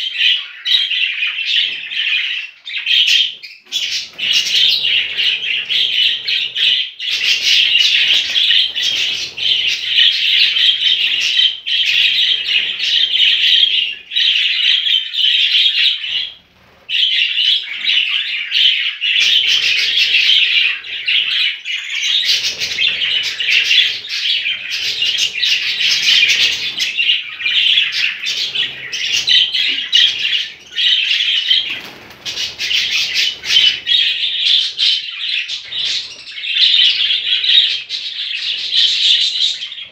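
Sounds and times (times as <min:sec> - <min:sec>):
budgerigars chirping: 0:00.1 - 0:39.9.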